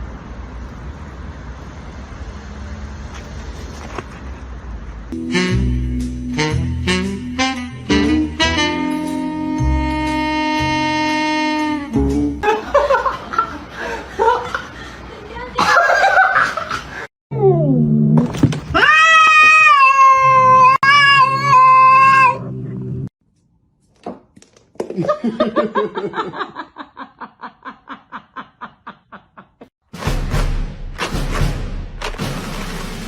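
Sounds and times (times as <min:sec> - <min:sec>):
people laughing: 0:12.4 - 0:17.0, 0:24.9 - 0:29.6.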